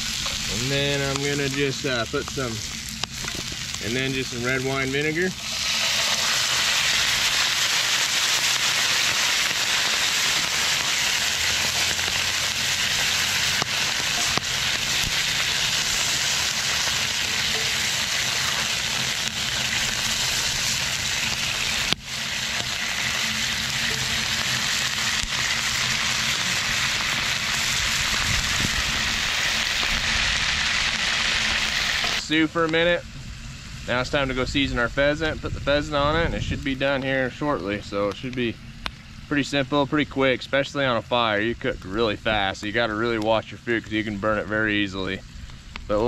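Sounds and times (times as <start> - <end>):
vegetables sizzling in a skillet: 0.0 - 34.8.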